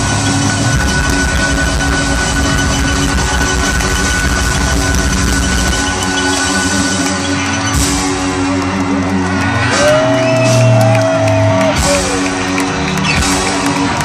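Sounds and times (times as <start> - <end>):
electric guitar sliding to high note: 0.0 - 8.5.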